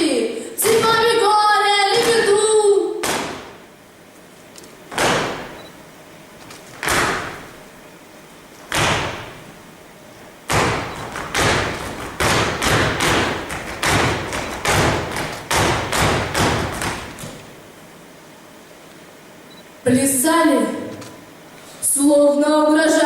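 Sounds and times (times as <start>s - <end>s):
feet stamping on stage floor: 4.9s - 5.6s, 6.4s - 7.6s, 8.6s - 9.5s, 10.5s - 17.5s.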